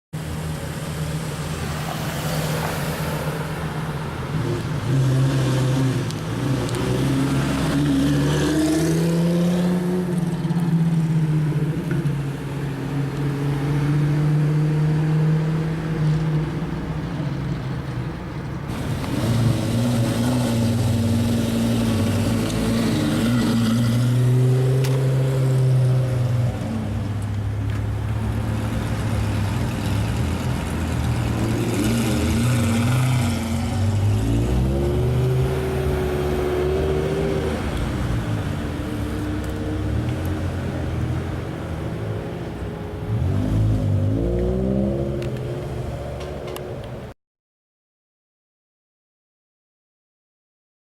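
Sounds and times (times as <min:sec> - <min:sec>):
sports car engine revving: 0:18.7 - 0:26.4, 0:28.4 - 0:41.7, 0:43.1 - 0:46.7.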